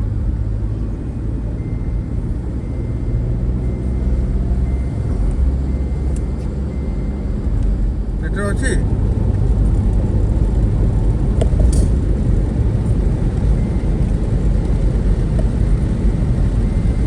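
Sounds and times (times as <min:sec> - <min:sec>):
vehicle rumble heard on board: 0:00.0 - 0:17.0.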